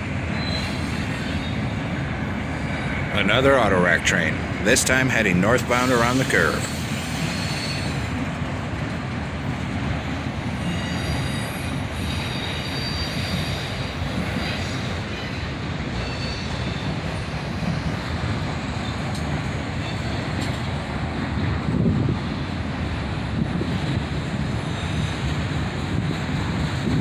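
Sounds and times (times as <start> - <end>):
freight train rumbling on rails: 0.0 - 27.0
wheel squeal: 0.4 - 1.8, 6.7 - 8.1, 10.6 - 13.9, 14.5 - 17.0.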